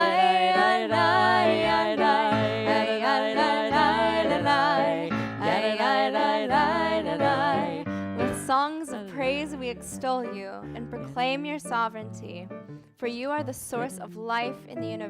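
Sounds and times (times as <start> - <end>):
low instrumental accompaniment: 0.0 - 15.0.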